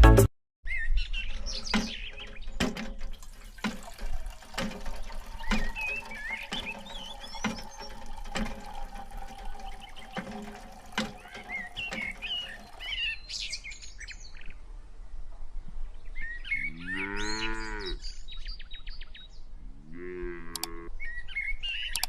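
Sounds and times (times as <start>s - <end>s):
small birds chirping: 0.7s - 4.0s, 21.0s - 22.0s
cow mooing: 16.7s - 18.0s, 19.8s - 20.9s.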